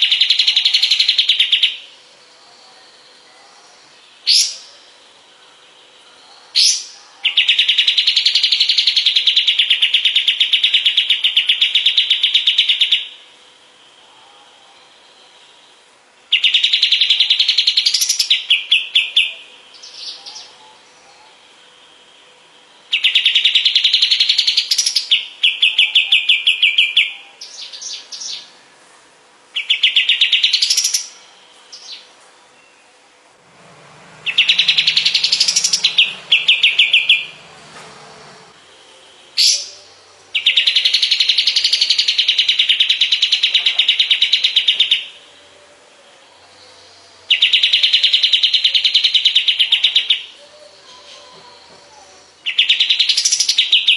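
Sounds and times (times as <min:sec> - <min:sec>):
bird singing whistles and trills: 0:16.3 - 0:21.4, 0:22.9 - 0:28.5, 0:29.6 - 0:33.0, 0:34.2 - 0:37.4, 0:38.8 - 0:45.2, 0:46.8 - 0:53.9.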